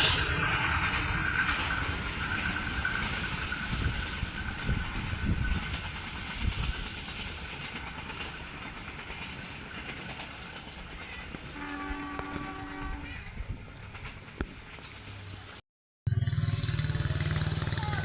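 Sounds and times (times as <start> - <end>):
train wheels clattering on rails: 0.0 - 15.1
locomotive horn blast: 11.6 - 13.2.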